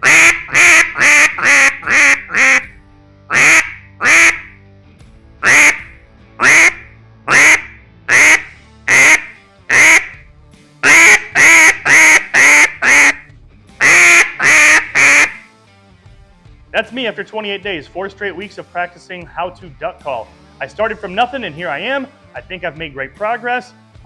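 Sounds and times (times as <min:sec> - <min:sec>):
duck call quacks: 0:00.0 - 0:02.7, 0:03.3 - 0:04.6, 0:05.4 - 0:10.2, 0:10.8 - 0:15.5.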